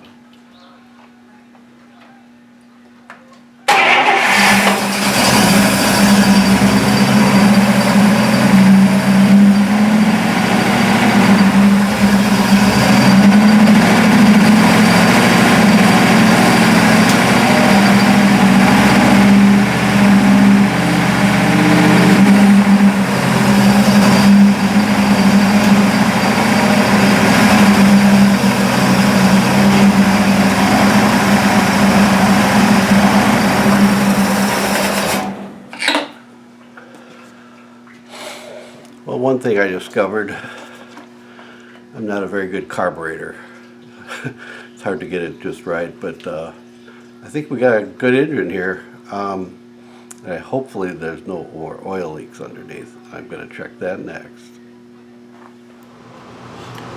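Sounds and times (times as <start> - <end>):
car engine running: 4.3 - 35.3.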